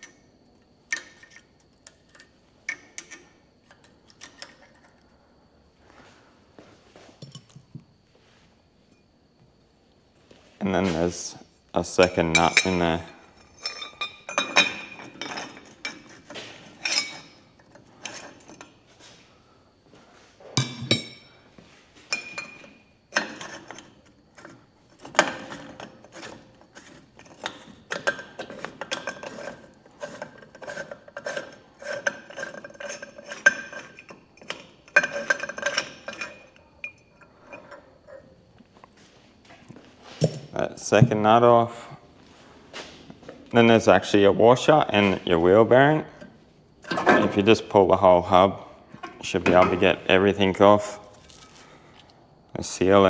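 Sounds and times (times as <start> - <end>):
metal tools clinking on wheel hub: 12.3 - 18.7, 30.1 - 38.3.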